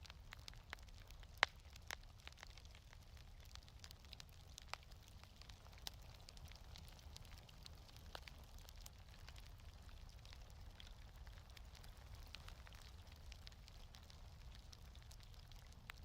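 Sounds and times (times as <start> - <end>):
quiet wood fire crackling: 0.0 - 16.0.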